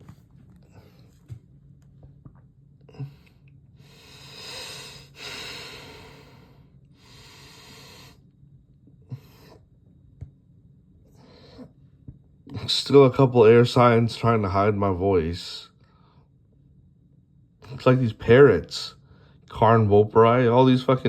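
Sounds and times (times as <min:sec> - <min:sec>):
man breathing close to microphone: 0:02.9 - 0:08.3.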